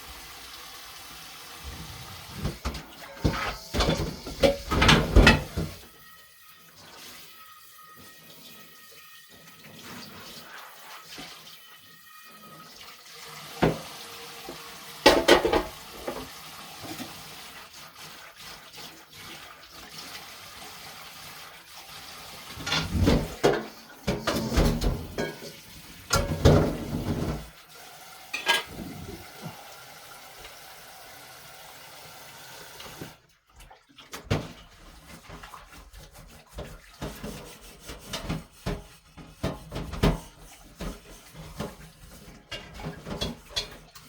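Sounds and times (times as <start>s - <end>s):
tap water running: 0.0s - 44.0s
dishes and pots clattering: 2.3s - 5.9s, 15.0s - 17.2s, 22.5s - 27.5s, 28.3s - 29.6s, 36.5s - 44.0s.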